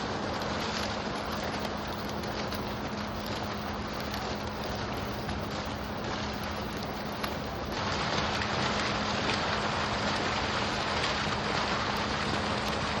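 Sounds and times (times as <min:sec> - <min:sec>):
water fountain splashing: 0:00.0 - 0:13.0.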